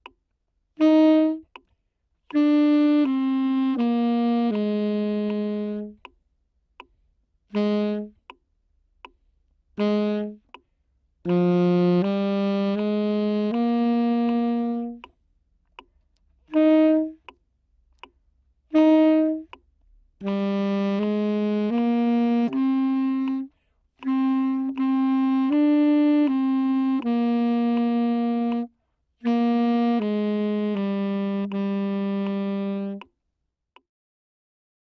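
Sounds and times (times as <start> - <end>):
tenor saxophone slow melody: 0.7 - 6.2, 7.5 - 8.4, 9.7 - 15.2, 16.5 - 17.4, 18.6 - 33.1.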